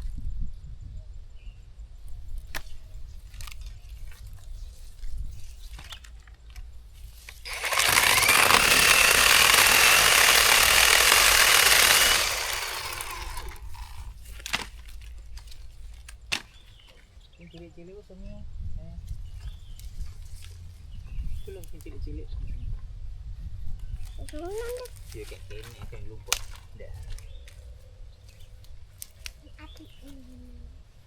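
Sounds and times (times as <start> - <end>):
electric chainsaw running: 7.5 - 14.1.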